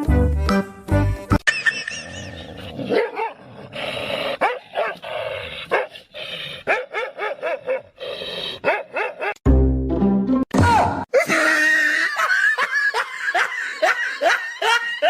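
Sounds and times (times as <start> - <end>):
dog barking and yipping: 1.5 - 3.4, 4.4 - 5.0, 5.7 - 6.0, 6.6 - 8.0, 8.6 - 9.4.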